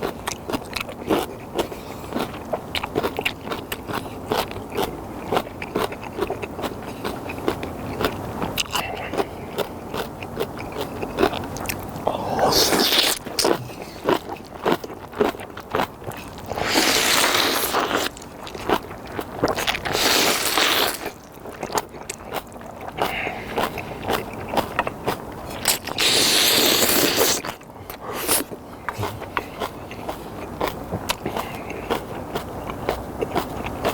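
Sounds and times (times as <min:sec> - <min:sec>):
wet chewing and mouth clicks: 0:00.0 - 0:33.9
noodle slurping: 0:11.6 - 0:15.4, 0:16.1 - 0:21.8, 0:25.5 - 0:29.3.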